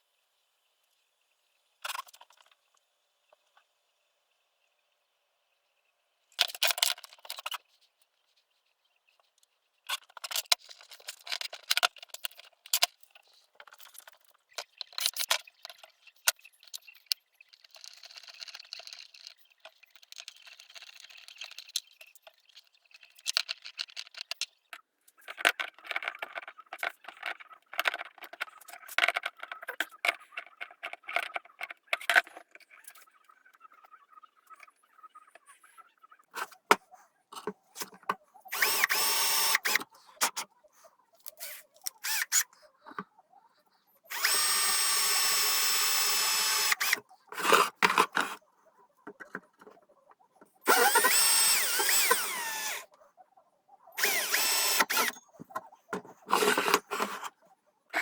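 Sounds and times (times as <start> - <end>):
hard parts clicking: 50.7 - 52.9, 54.0 - 57.3.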